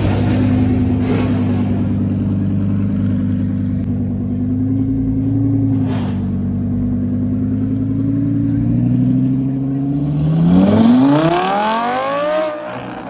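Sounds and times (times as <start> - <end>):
car engine running: 0.0 - 13.0
brief whoosh: 5.6 - 6.7.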